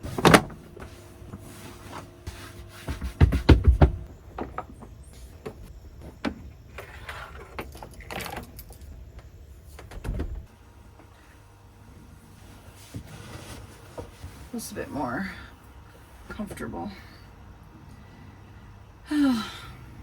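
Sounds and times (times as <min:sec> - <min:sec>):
heavy thumps: 0:02.8 - 0:04.6.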